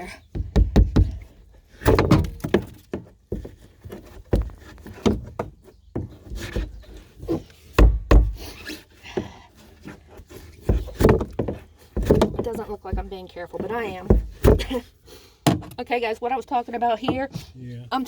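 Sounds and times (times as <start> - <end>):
knocks and thumps: 0.1 - 15.8, 17.0 - 17.5
hand tool prying and chipping foam: 1.8 - 15.8.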